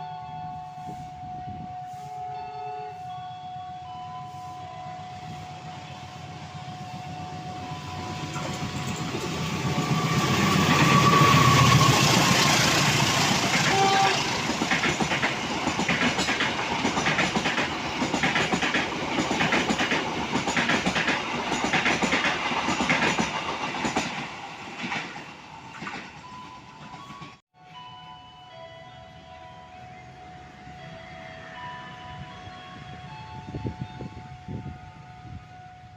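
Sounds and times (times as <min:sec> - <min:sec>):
train rumbling past: 0:00.0 - 0:35.9
train wheels clicking over rail joints: 0:04.6 - 0:27.4.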